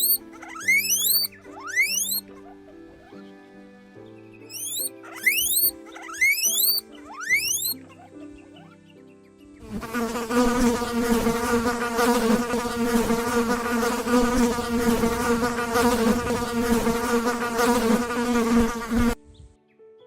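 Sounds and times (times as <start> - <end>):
flying insect buzzing: 0.0 - 2.2, 4.5 - 7.8, 9.6 - 19.2.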